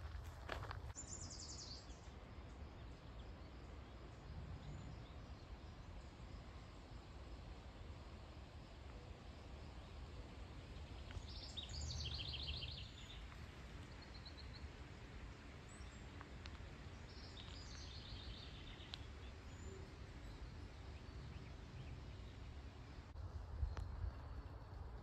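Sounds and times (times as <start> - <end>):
faint low rumble: 0.0 - 25.0
songbird trilling: 11.3 - 13.2.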